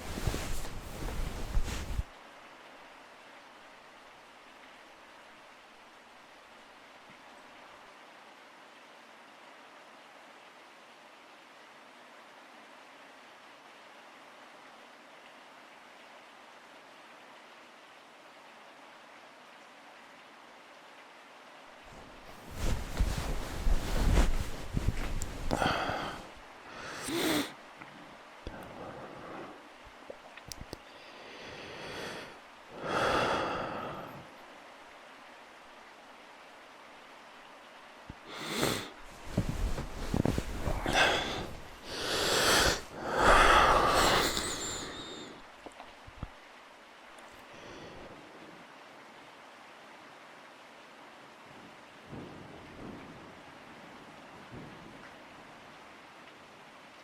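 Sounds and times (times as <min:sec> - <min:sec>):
person breathing and sighing: 0:00.0 - 0:02.1, 0:22.3 - 0:27.6, 0:30.8 - 0:34.2, 0:38.3 - 0:45.5
rustling against microphone: 0:00.0 - 0:02.1, 0:21.9 - 0:26.4, 0:38.3 - 0:45.2
faint background hiss: 0:00.0 - 0:57.0
faint steady rain: 0:00.0 - 0:57.0.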